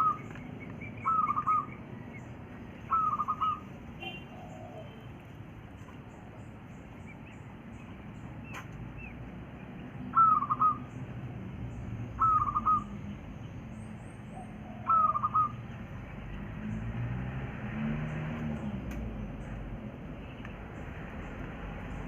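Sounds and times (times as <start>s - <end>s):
quail calling: 0.0s - 5.0s, 10.1s - 11.0s, 12.1s - 13.0s, 14.4s - 15.7s.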